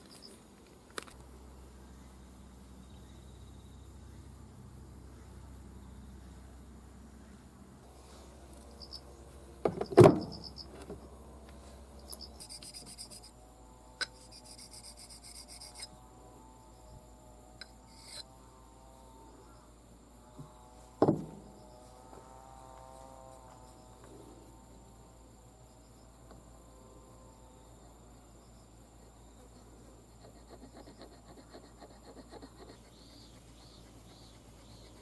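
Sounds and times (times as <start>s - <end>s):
small clicks and rubbing: 0.0s - 1.3s
crickets chirping: 0.0s - 35.0s.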